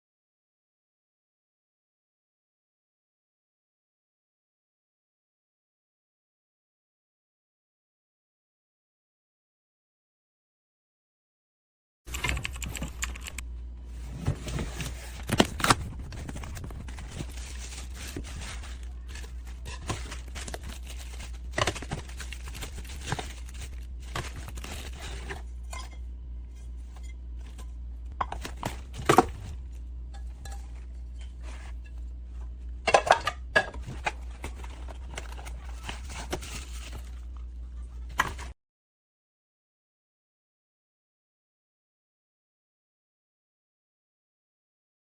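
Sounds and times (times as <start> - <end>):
steady low hum: 12.1 - 38.5
cookware knocking and clinking: 32.9 - 33.8.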